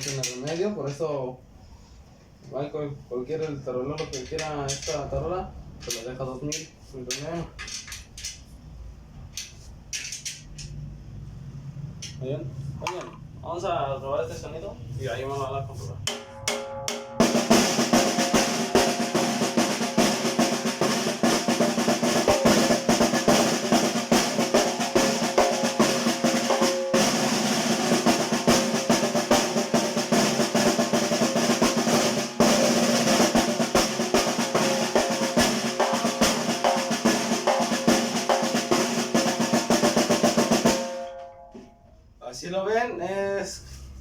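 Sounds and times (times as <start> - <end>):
snare drum rolls: 16.1 - 41.2.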